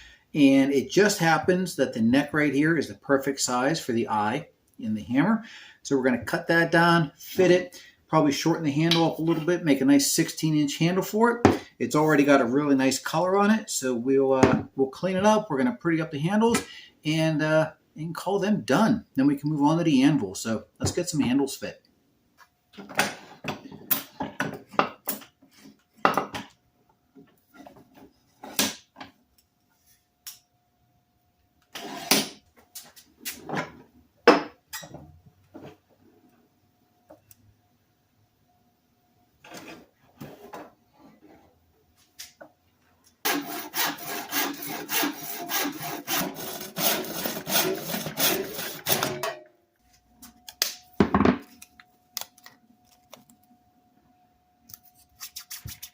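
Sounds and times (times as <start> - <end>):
hand saw cutting wood: 31.8 - 32.4, 43.2 - 49.2
tools clattering: 48.8 - 49.5.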